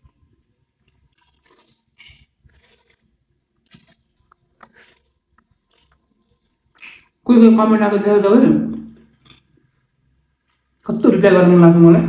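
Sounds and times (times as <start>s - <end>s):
person chewing food: 0.0s - 7.3s, 8.9s - 10.9s.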